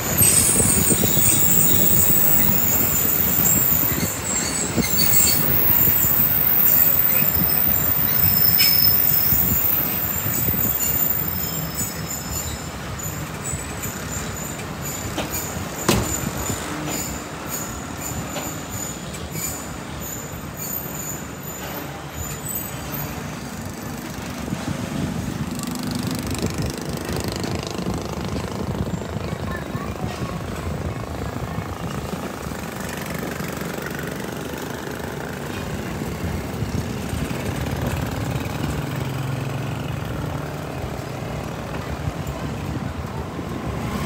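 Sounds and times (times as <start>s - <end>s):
high wheel squeal: 0.0s - 29.4s
train wheels on rails: 0.0s - 44.0s.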